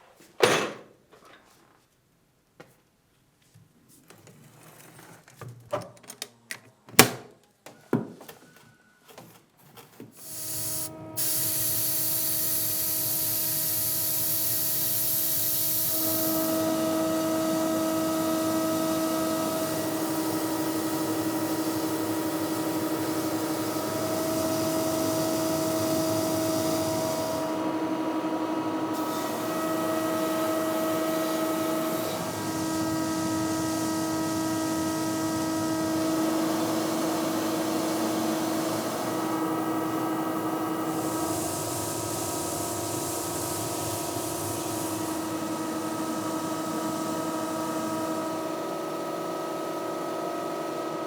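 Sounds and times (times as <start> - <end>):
hissing spray: 10.2 - 16.9, 36.5 - 47.8
power tool whining: 10.2 - 49.3.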